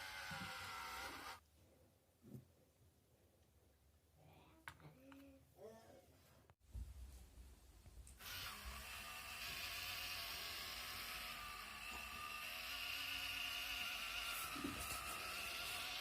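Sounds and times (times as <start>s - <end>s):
small electric motor whining: 0.0s - 1.4s, 8.2s - 16.0s.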